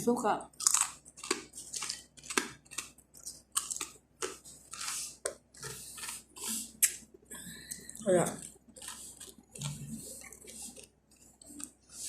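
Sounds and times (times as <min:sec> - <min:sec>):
crunching crisp flatbread: 0:00.5 - 0:07.1.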